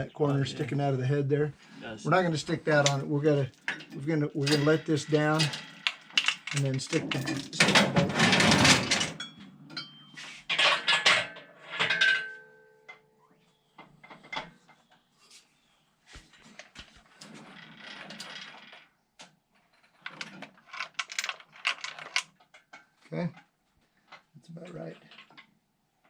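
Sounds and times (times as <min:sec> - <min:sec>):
metal chain rattling and clanking: 0:02.7 - 0:12.4, 0:17.2 - 0:18.8, 0:19.9 - 0:22.3.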